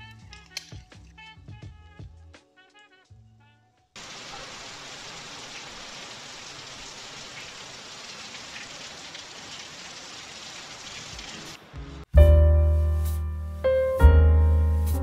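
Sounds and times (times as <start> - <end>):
water dripping off a roof: 4.0 - 11.6
steady rain falling: 4.0 - 12.0.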